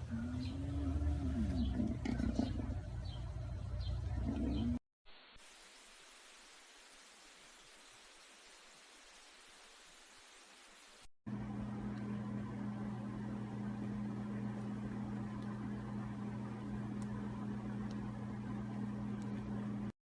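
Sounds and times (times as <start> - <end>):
faint low hum: 0.0 - 4.8, 11.3 - 19.9
light hiss: 5.1 - 11.1.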